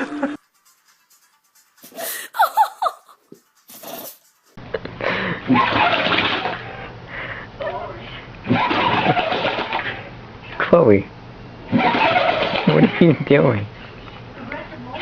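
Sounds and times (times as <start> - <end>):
quick squeaky sounds: 3.5 - 4.4.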